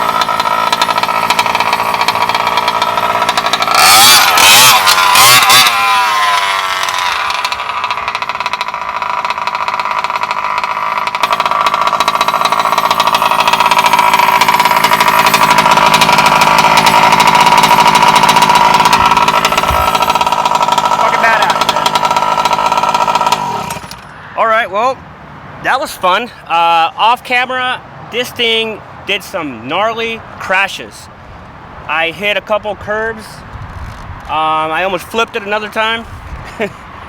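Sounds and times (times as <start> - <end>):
rc truck two-stroke engine revving: 0.0 - 24.2.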